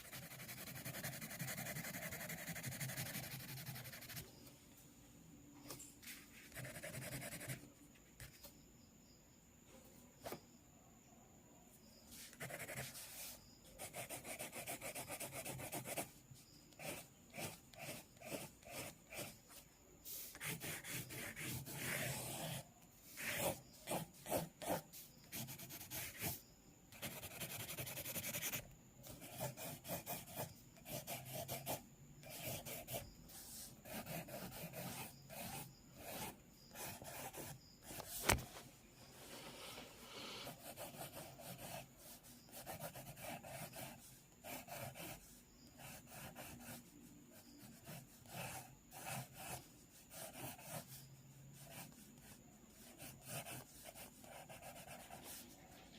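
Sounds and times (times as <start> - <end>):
pencil sketching on paper: 0.0 - 4.2, 6.1 - 7.6, 12.1 - 38.2, 40.4 - 51.0, 51.6 - 55.9.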